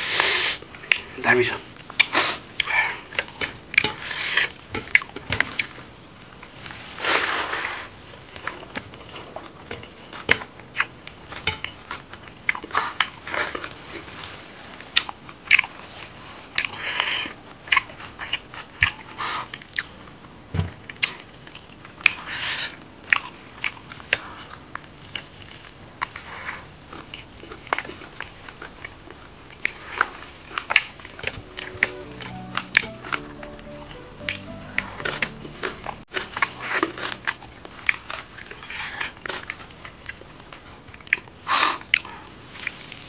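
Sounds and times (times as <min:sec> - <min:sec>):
open-mouth chewing smacks: 0:12.2 - 0:13.6, 0:41.0 - 0:43.0.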